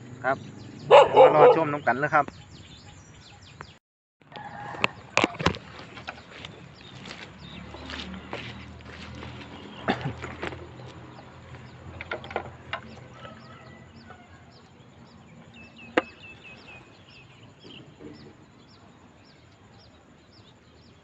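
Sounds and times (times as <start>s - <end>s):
bird chirping: 0.0s - 3.8s, 4.8s - 21.0s
bird trill: 0.0s - 3.8s, 12.8s - 21.0s.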